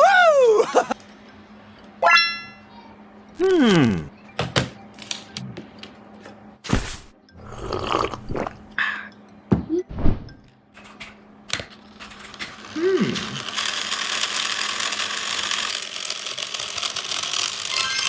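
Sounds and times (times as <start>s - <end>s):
toy car mechanism clicking: 10.8s - 18.0s
toy car motor whirring: 12.1s - 18.0s.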